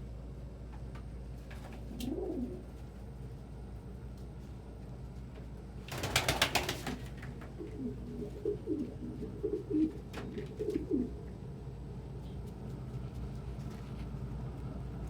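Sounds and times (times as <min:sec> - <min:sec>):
pigeon cooing: 0:01.8 - 0:02.9, 0:07.4 - 0:11.3
pigeon wings fluttering: 0:05.8 - 0:08.8.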